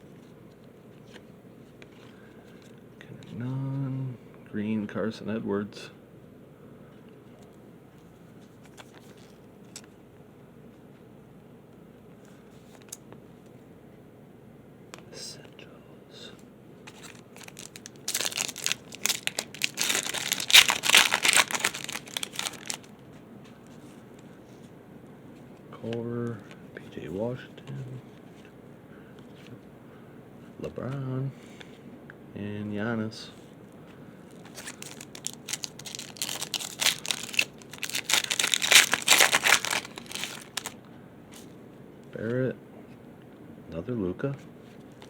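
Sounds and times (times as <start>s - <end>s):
plastic wrapper crinkling: 16.9s - 23.0s, 34.3s - 40.8s.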